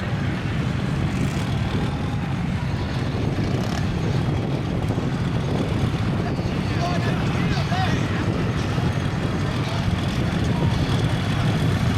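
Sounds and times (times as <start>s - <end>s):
truck engine droning: 0.0s - 11.9s.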